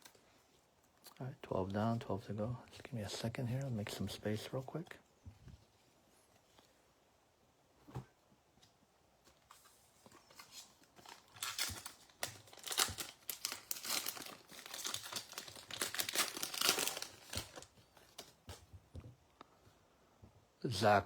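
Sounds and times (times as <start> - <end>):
wrappers crinkling: 10.3 - 18.5.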